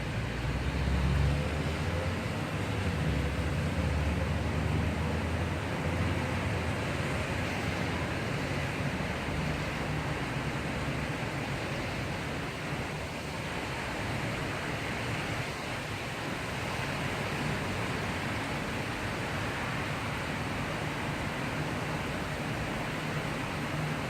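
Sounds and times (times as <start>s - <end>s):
heavy rain: 0.0s - 24.0s.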